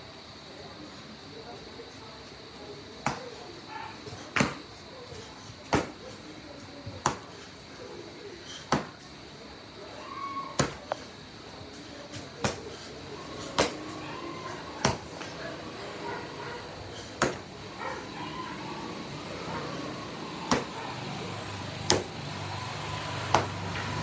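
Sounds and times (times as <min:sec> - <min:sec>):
karate punches smacking: 0:03.0 - 0:03.4, 0:04.2 - 0:04.8, 0:05.6 - 0:06.2, 0:07.0 - 0:07.4, 0:08.7 - 0:09.0, 0:10.6 - 0:11.0, 0:12.1 - 0:14.1, 0:14.8 - 0:15.3, 0:17.0 - 0:17.6, 0:20.3 - 0:22.4, 0:23.2 - 0:23.8.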